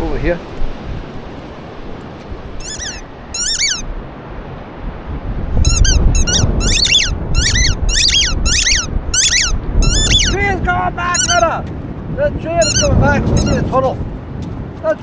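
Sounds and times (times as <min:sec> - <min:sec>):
dog whining and yelping: 0:02.6 - 0:03.8, 0:05.7 - 0:10.4, 0:11.2 - 0:11.4, 0:12.6 - 0:13.6.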